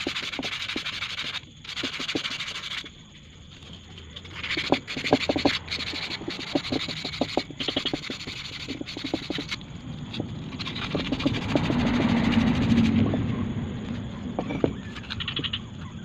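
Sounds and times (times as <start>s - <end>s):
rubbing and scraping on metal: 0.0s - 15.6s
low hum: 8.1s - 16.0s.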